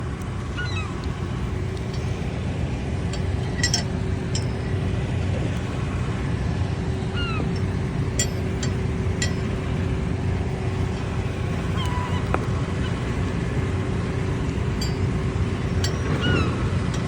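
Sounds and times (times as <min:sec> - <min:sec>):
low rumble of traffic or wind: 0:00.0 - 0:17.0
seagull calls: 0:00.6 - 0:01.0, 0:07.1 - 0:07.6, 0:11.6 - 0:13.1, 0:16.1 - 0:16.7.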